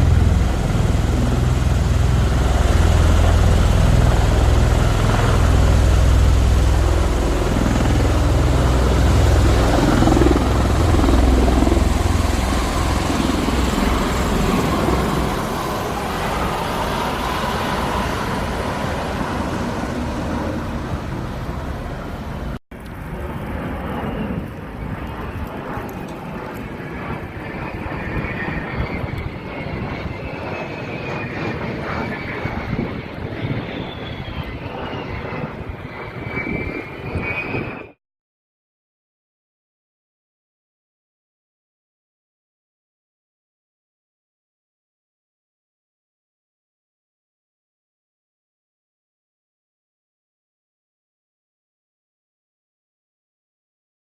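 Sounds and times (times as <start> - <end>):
military aircraft rumble: 0.0 - 38.0.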